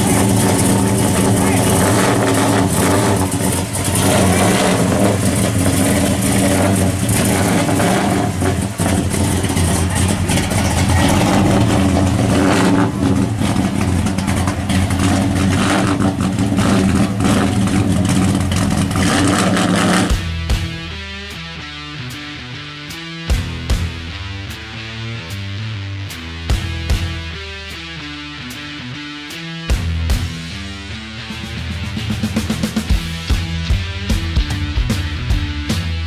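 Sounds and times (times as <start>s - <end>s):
car engine idling and revving: 0.0s - 36.0s.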